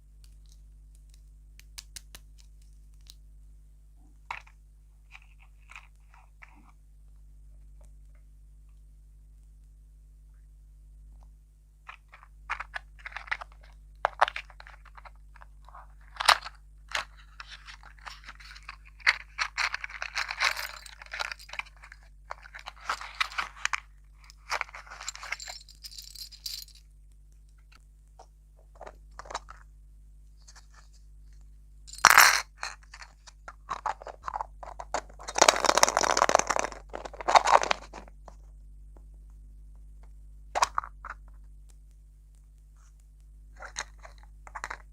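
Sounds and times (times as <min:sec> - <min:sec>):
crunching and chewing desserts: 0:32.8 - 0:38.5.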